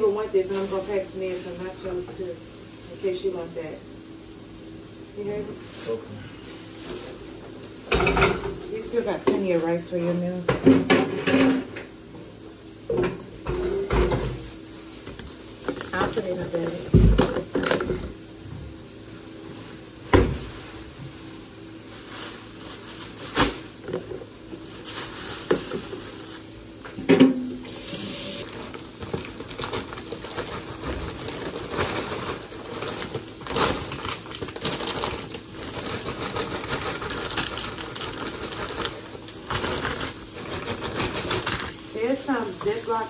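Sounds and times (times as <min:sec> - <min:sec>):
rustling: 0:21.9 - 0:26.5, 0:28.4 - 0:41.8.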